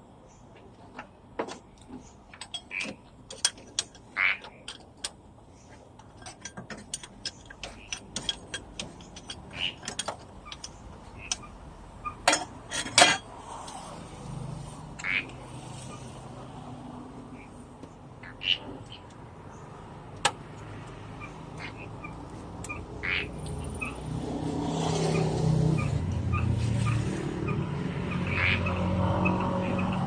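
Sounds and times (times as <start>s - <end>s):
metal tools clinking on metal: 1.0s - 16.2s.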